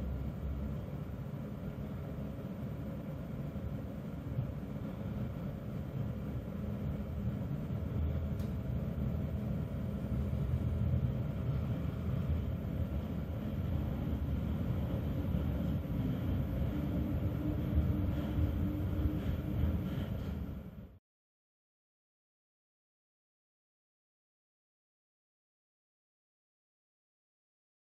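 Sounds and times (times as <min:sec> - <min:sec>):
train rumbling past: 0:06.9 - 0:21.0.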